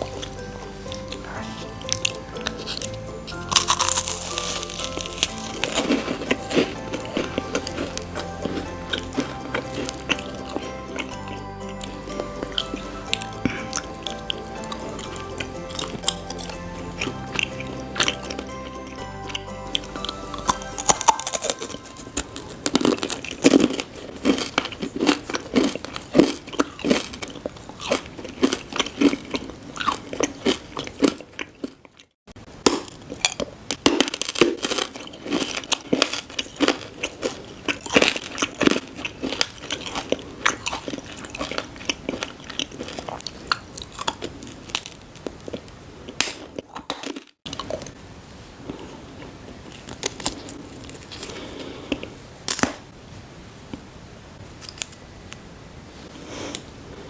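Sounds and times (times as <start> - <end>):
chewing and crunching food: 0.0 - 52.8.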